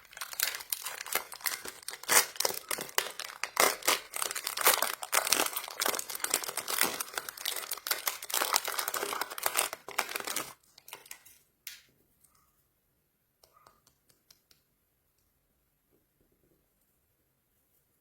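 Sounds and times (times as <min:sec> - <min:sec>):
plastic wrapper crinkling: 0:00.0 - 0:11.4.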